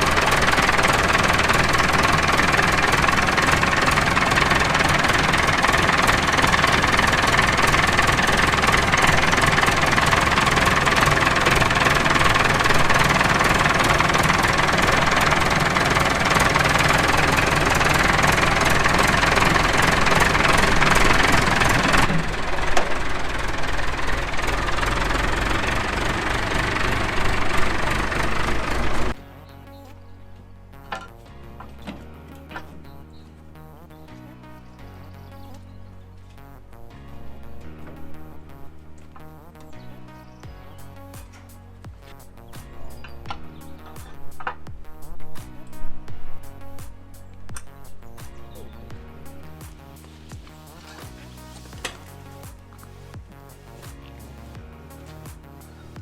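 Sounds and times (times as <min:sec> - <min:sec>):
tractor engine running: 0:00.0 - 0:29.2, 0:40.8 - 0:56.0.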